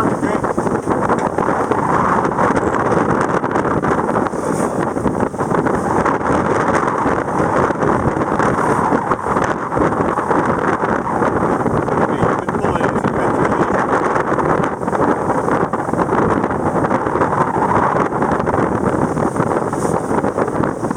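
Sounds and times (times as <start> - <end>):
rush of boat motion: 0.0 - 20.9
wind buffeting microphone: 0.0 - 20.9.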